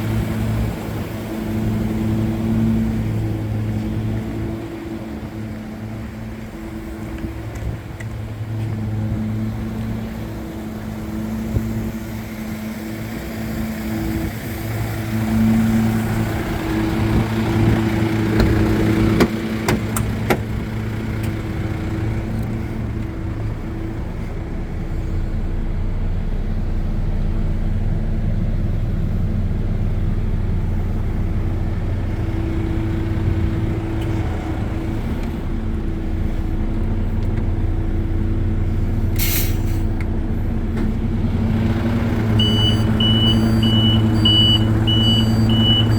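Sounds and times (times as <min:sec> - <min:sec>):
truck diesel engine running: 0:00.0 - 0:45.9
short hiss: 0:39.2 - 0:40.0.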